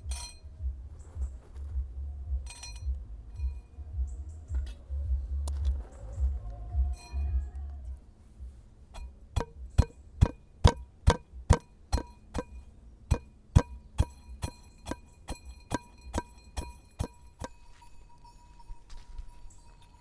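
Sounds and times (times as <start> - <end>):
sharp ringing strikes: 0.0 - 0.7, 2.4 - 3.8, 8.9 - 20.0.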